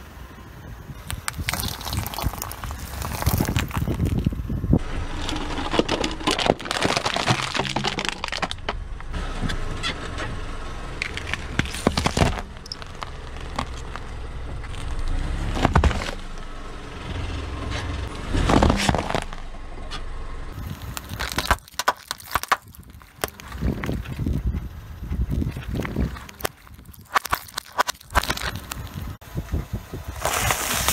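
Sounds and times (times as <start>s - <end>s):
ice cracking and shattering: 1.0s - 4.4s, 5.1s - 8.7s, 11.0s - 16.4s, 18.4s - 19.4s, 20.6s - 24.5s, 25.2s - 29.2s, 30.2s - 30.9s
plastic cups cracking and squelching: 1.0s - 4.5s, 5.1s - 8.8s, 11.0s - 16.4s, 18.4s - 19.4s, 20.6s - 29.2s, 30.2s - 30.9s.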